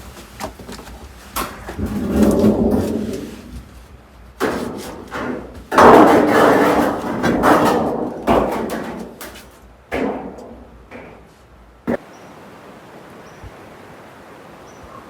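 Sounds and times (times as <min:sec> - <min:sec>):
scraping rustling sound: 0:00.0 - 0:09.8
knocks or thuds: 0:04.4 - 0:12.0.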